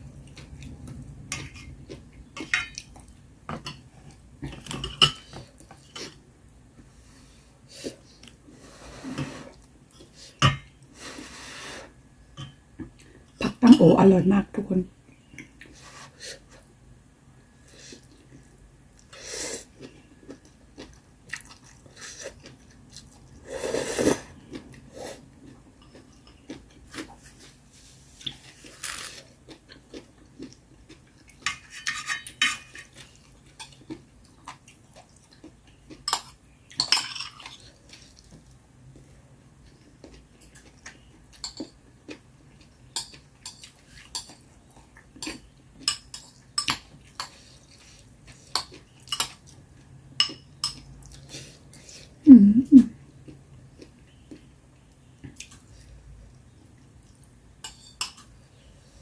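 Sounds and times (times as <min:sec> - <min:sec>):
chewing: 0:17.9 - 0:23.4, 0:24.2 - 0:27.6, 0:28.2 - 0:31.6, 0:32.8 - 0:49.6.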